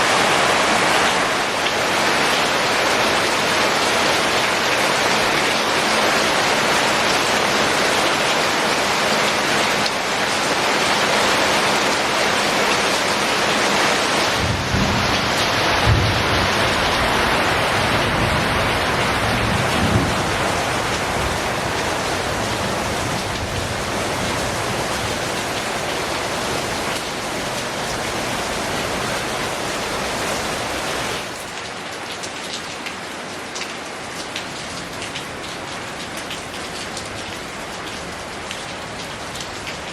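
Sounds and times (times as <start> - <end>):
heavy rain hissing: 0.0 - 31.6.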